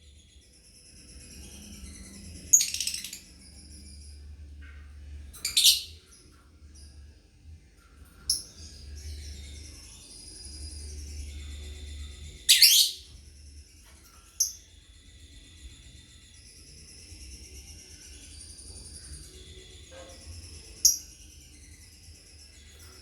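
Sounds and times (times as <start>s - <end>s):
high twittering: 9.2s - 13.2s
lovebirds chirping: 11.9s - 13.0s.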